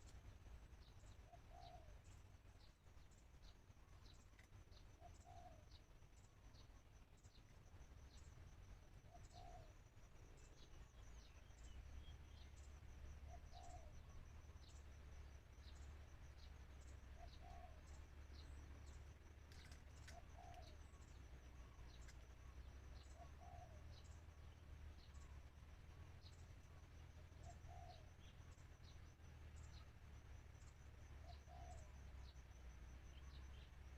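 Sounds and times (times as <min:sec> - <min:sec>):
dove cooing: 0:01.3 - 0:01.9, 0:17.2 - 0:17.9, 0:20.1 - 0:21.0, 0:23.2 - 0:24.0, 0:31.2 - 0:32.0.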